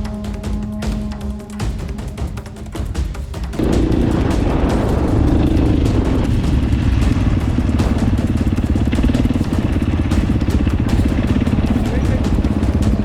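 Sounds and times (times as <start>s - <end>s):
dirt bike engine running: 3.5s - 13.0s.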